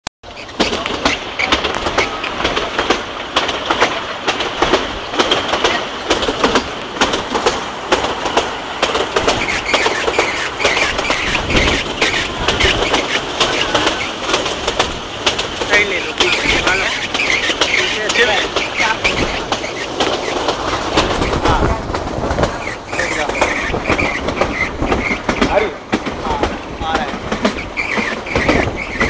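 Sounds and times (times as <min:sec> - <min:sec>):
train wheels clattering on rails: 0:00.2 - 0:29.0
high wheel squeals: 0:09.2 - 0:14.4, 0:15.7 - 0:21.4, 0:27.5 - 0:29.0.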